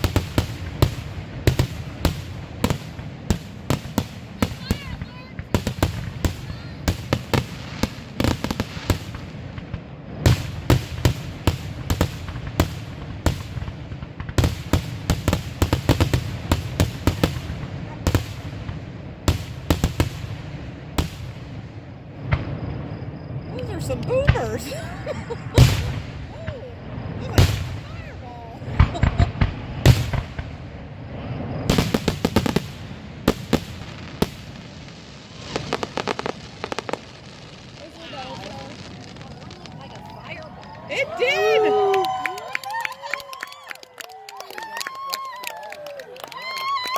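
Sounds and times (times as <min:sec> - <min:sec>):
fireworks bangs: 0:00.0 - 0:46.9.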